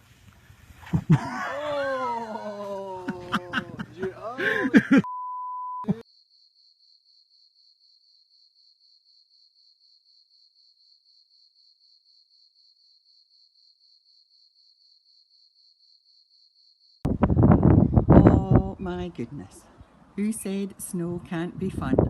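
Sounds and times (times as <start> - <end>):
short steady beep: 5.0 - 6.0
faint cricket chirping: 5.8 - 17.6.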